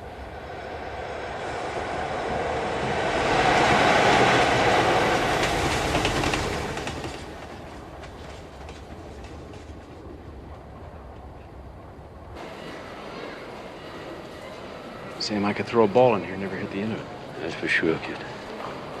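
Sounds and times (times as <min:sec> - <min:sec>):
train rumbling on rails: 0:00.0 - 0:19.0
wheels clacking over rail joints: 0:02.0 - 0:11.5.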